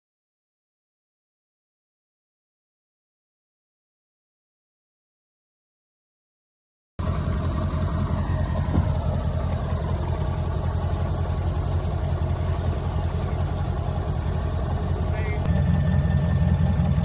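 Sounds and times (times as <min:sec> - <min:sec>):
vehicle engine running: 0:07.0 - 0:17.0.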